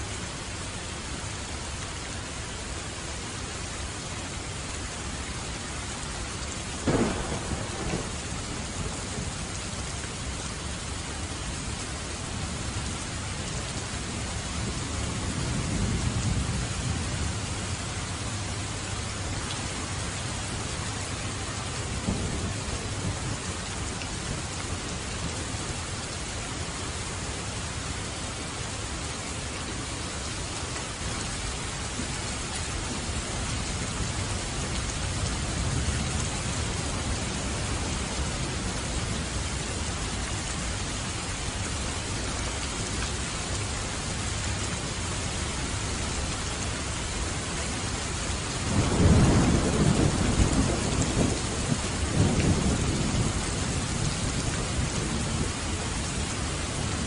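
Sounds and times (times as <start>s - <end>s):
heavy rain: 0.0s - 57.0s
thunder rumbling: 6.8s - 9.8s, 22.0s - 23.5s, 48.6s - 55.4s.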